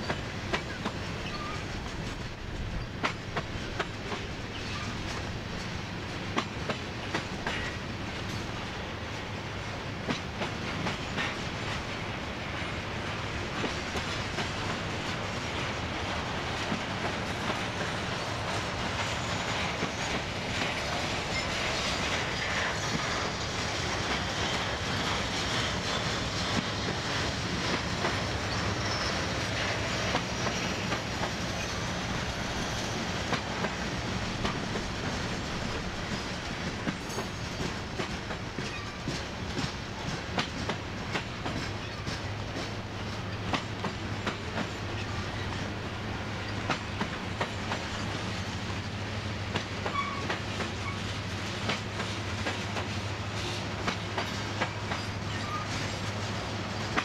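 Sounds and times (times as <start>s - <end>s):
steel wheels rolling on rail: 0.0s - 57.0s
wheels clacking over rail joints: 13.5s - 57.0s.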